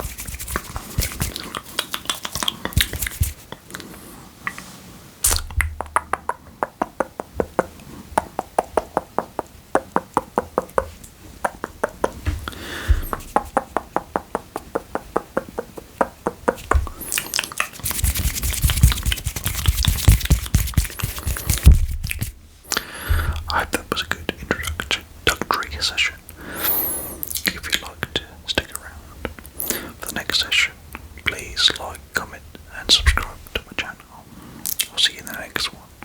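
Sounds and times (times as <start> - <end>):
wet mouth clicks: 0.6 - 4.6, 5.2 - 22.9, 29.2 - 31.9, 33.0 - 35.8
wet mouth crackling: 0.6 - 4.6, 5.2 - 22.9, 29.3 - 30.2.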